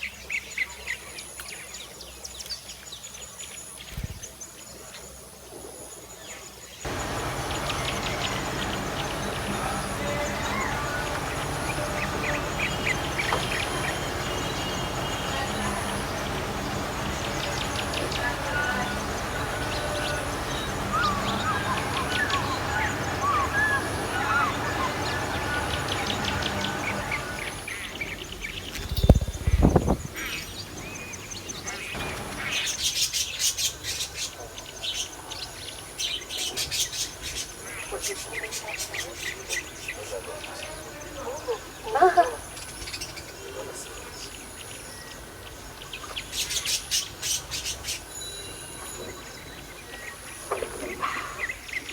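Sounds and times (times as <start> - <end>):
budgerigar chirping: 6.9 - 27.6
steady background hiss: 6.9 - 33.3.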